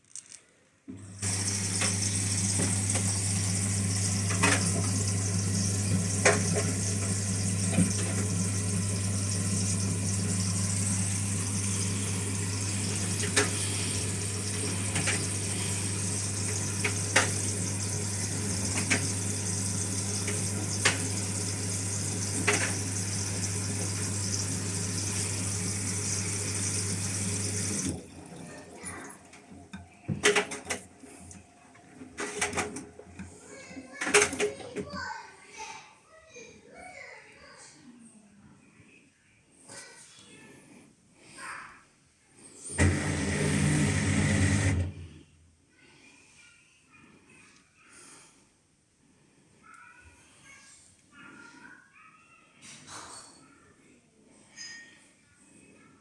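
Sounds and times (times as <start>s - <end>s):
washing machine low hum: 1.0s - 33.5s, 42.6s - 45.2s
water rushing into washing machine: 1.0s - 35.0s, 42.6s - 45.2s.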